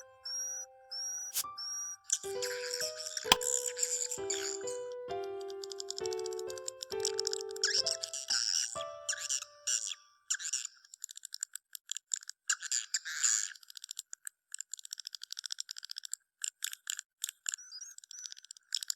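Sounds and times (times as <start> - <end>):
swiftlet chirping clicks: 3.3 - 3.5.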